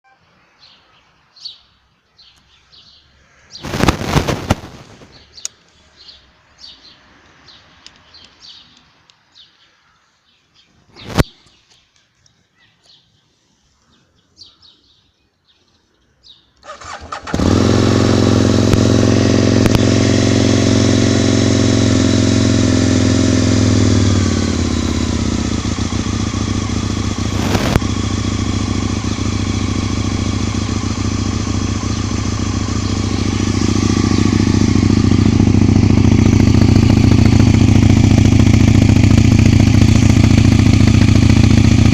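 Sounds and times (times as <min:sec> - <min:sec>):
birds chirping: 0:00.1 - 0:04.0, 0:04.9 - 0:17.2, 0:22.4 - 0:41.4
motorcycle engine starting and idling: 0:03.6 - 0:05.4, 0:16.6 - 0:41.9.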